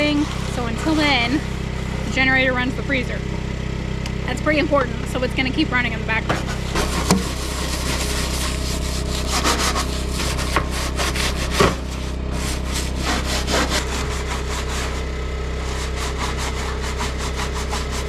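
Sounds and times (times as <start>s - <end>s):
generator humming: 0.0s - 18.0s
hand rubbing strokes on metal: 6.4s - 15.0s.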